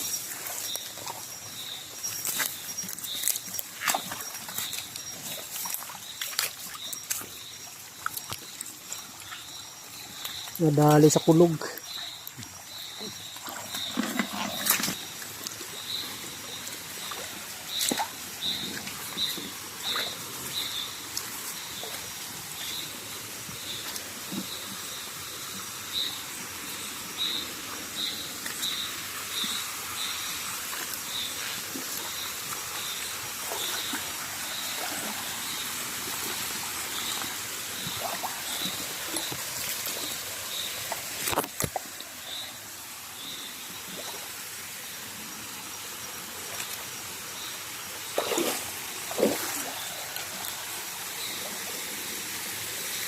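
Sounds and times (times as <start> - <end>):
water trickling: 0.0 - 53.0.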